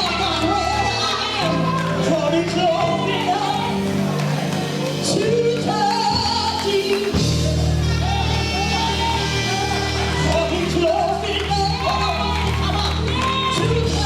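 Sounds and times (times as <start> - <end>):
live band playing: 0.0 - 14.0
people singing: 0.0 - 14.0.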